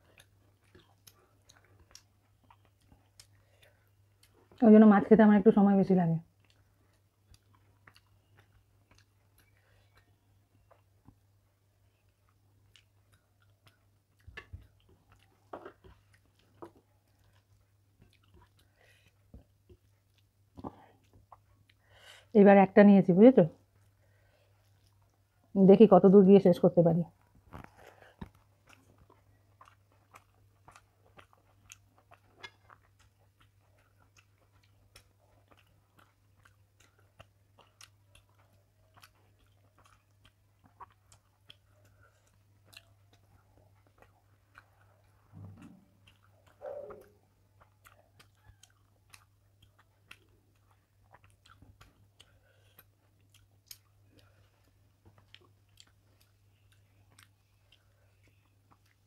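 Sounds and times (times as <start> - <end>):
person chewing food: 0.0 - 4.6, 6.3 - 22.0, 23.6 - 25.5, 27.1 - 59.0
faint electrical hum: 0.0 - 59.0.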